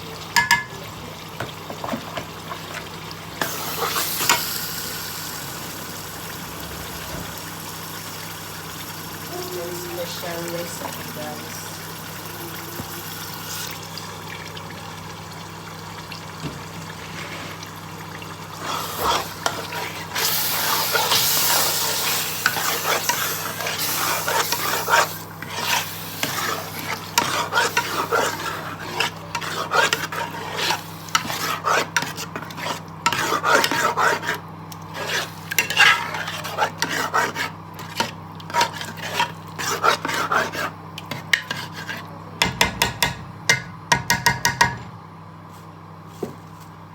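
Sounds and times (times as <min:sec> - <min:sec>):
stew sizzling in oil: 0:00.0 - 0:41.8
spoon scraping a pot: 0:18.6 - 0:43.2.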